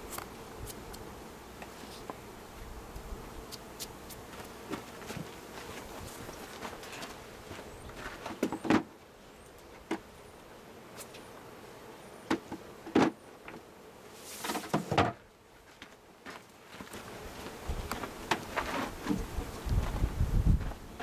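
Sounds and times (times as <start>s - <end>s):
wooden hive frames knocking and scraping: 0.0s - 10.2s, 12.2s - 16.0s, 16.7s - 21.0s
bees humming: 0.0s - 14.8s.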